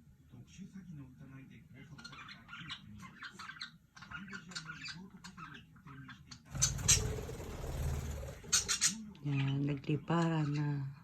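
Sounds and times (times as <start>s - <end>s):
budgies chattering: 1.9s - 10.8s
wings flapping: 6.5s - 9.0s.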